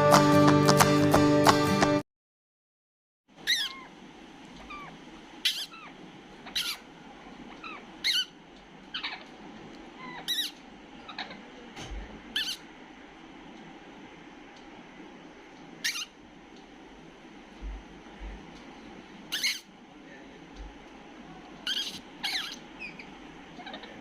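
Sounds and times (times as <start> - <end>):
parrot calling: 3.4 - 4.0, 4.6 - 11.6, 12.3 - 12.7, 15.8 - 16.2, 19.3 - 19.7, 21.6 - 24.0.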